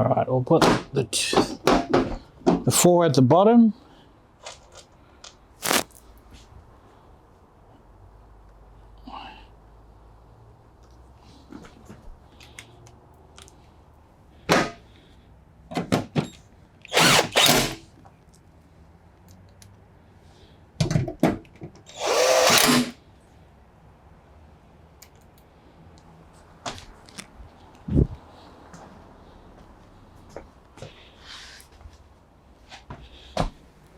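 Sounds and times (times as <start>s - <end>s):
power drill driving screws: 5.6s - 5.9s, 16.9s - 17.8s, 21.9s - 23.0s.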